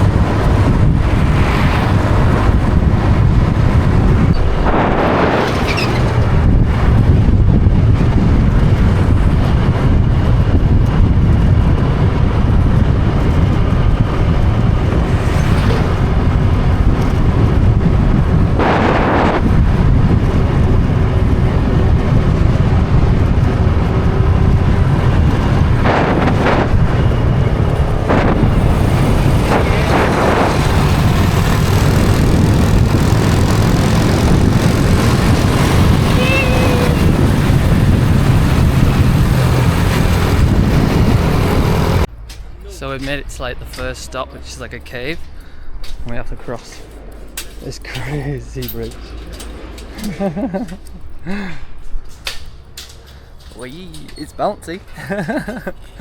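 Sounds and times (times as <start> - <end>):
scooter engine: 0.0 - 42.2
road noise: 0.0 - 56.0
wind buffeting microphone: 0.0 - 56.0.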